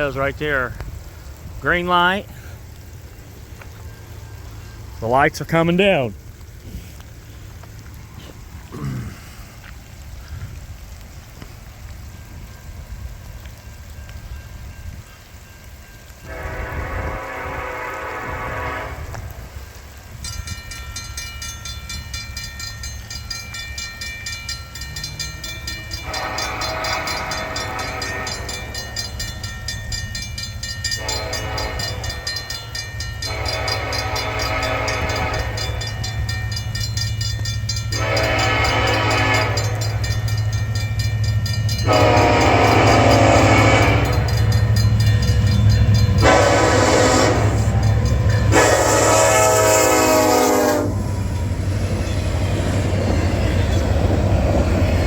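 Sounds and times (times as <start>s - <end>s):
low train rumble: 0.0s - 55.0s
crossing bell ringing: 12.0s - 17.3s, 19.6s - 55.0s
locomotive air horn blasts: 16.2s - 19.5s, 25.9s - 28.8s, 30.9s - 32.5s, 33.2s - 36.0s, 37.9s - 40.1s, 41.8s - 51.2s.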